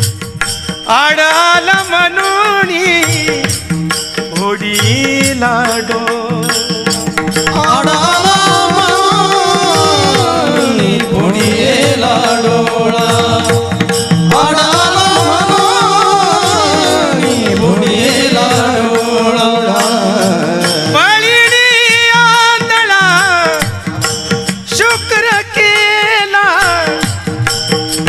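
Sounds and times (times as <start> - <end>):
tabla beats: 0.0 - 28.0
person singing long melodic phrases: 7.5 - 23.8.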